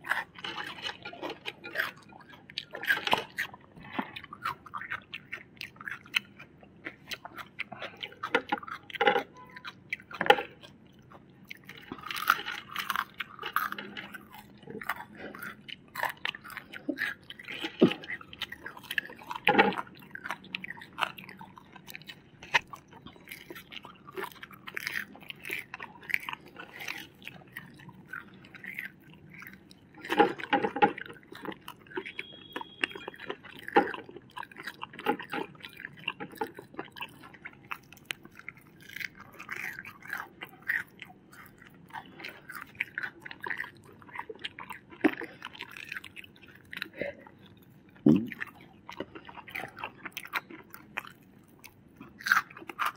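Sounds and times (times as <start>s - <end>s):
people chewing crunchy food: 0.0s - 52.9s
wet mouth noises: 11.6s - 52.9s.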